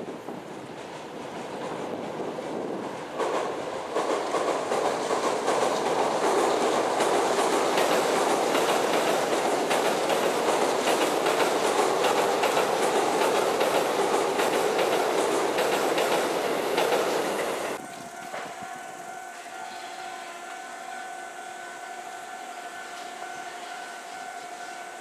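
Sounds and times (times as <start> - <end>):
train wheels rumbling on rail: 0.0 - 25.0
wheels clacking over rail joints: 0.3 - 18.7.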